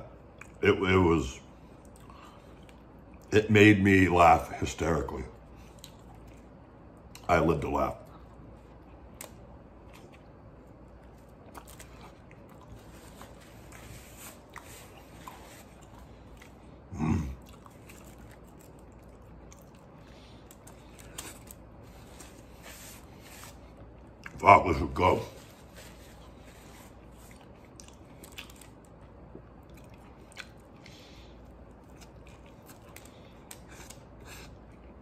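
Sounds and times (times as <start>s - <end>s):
man chewing food: 0.0s - 0.6s, 1.5s - 3.3s, 5.4s - 7.3s, 8.0s - 24.4s, 25.3s - 35.0s
low throat vocal sound: 16.9s - 17.5s.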